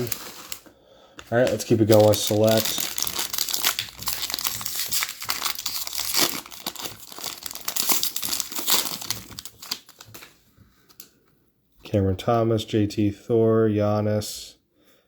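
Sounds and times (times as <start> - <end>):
plastic wrapper crinkling and tearing: 0.0 - 0.7, 1.3 - 11.1.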